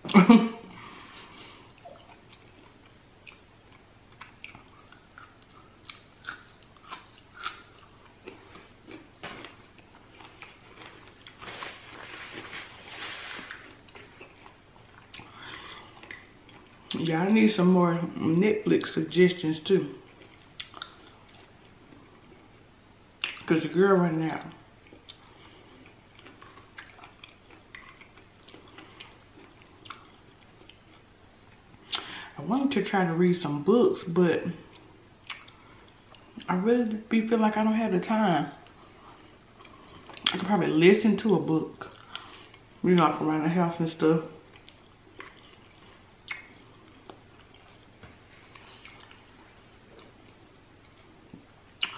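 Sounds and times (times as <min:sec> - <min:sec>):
person chewing asparagus: 0:00.8 - 0:17.0, 0:20.0 - 0:22.4, 0:24.8 - 0:32.3, 0:34.6 - 0:36.5, 0:38.6 - 0:40.4, 0:41.8 - 0:42.7, 0:44.4 - 0:51.9.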